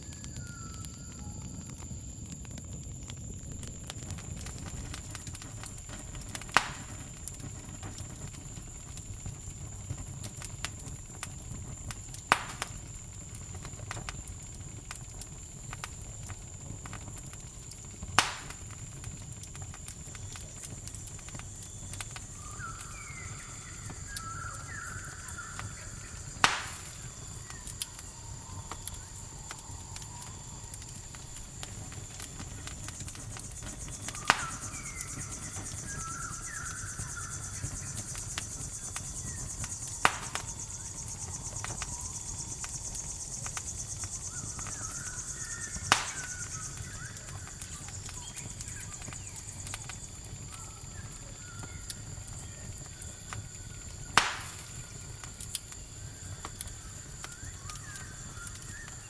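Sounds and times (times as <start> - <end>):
campfire crackling: 0.0 - 59.0
cricket trill: 0.0 - 59.0
sharp loud pops of fire: 2.5 - 52.5, 54.0 - 55.6
short chirping calls: 22.3 - 30.8, 33.7 - 49.3.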